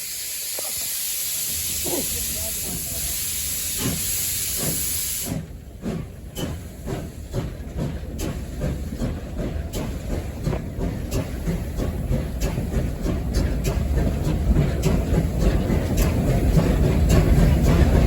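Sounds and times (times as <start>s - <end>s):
loud hiss of steam: 0.0s - 7.5s
locomotive exhaust beats: 0.0s - 18.0s
steam locomotive rumble: 0.0s - 18.0s.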